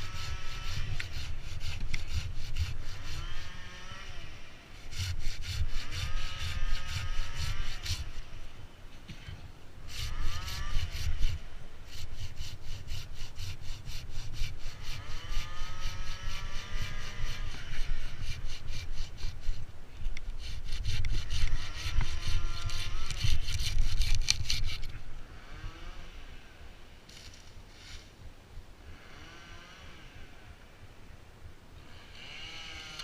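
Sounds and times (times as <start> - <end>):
saw cutting through wood: 0.0 - 8.5, 9.8 - 26.1.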